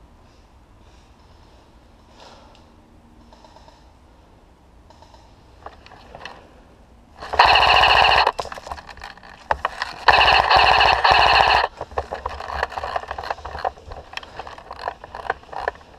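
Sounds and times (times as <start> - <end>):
airsoft rifle rapid-fire bursts: 7.2 - 8.4, 10.0 - 15.9
clicks: 7.2 - 15.9
rustling: 7.2 - 15.9.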